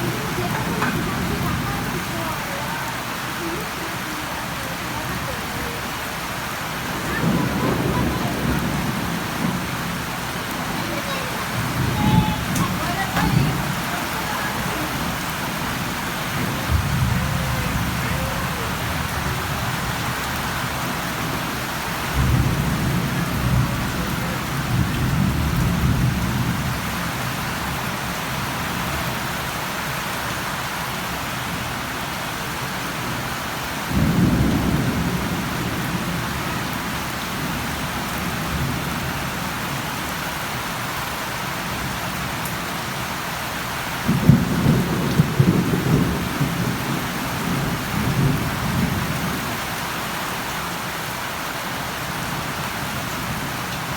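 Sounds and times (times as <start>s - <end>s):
rolling thunder: 0.0s - 3.2s, 4.4s - 27.4s, 33.9s - 39.2s, 44.0s - 49.6s
steady rain: 0.0s - 53.9s.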